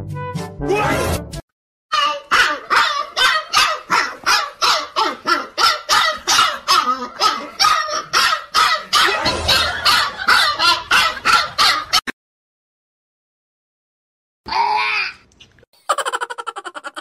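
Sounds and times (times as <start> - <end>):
puppy barking high yaps: 2.0 - 12.0.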